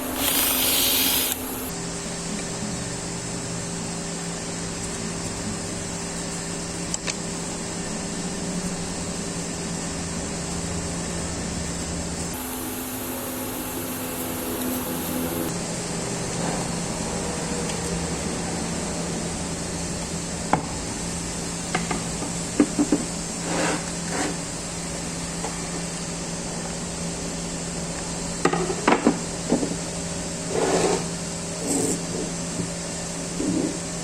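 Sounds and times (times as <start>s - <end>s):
steady machine hum: 0.0s - 2.2s, 12.3s - 15.6s.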